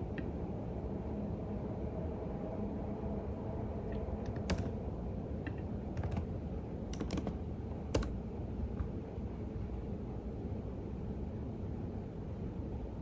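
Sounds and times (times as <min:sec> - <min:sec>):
low background rumble: 0:00.0 - 0:13.0
keyboard typing: 0:03.9 - 0:04.9, 0:05.5 - 0:08.2.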